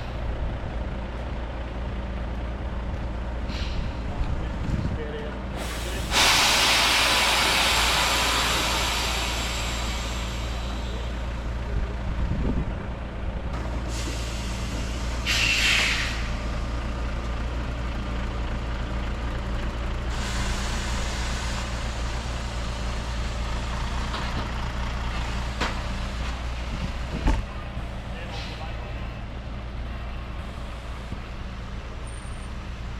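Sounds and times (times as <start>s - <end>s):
truck engine running: 0.0s - 32.9s
air brakes hissing: 3.4s - 4.2s, 5.5s - 11.6s, 13.6s - 17.8s, 19.9s - 24.5s, 27.9s - 28.9s.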